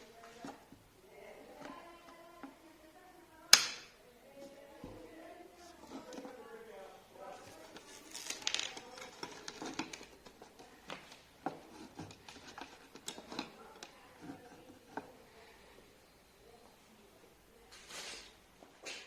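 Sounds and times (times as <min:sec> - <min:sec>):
rustling scrape: 0:07.2 - 0:15.2, 0:17.7 - 0:19.0.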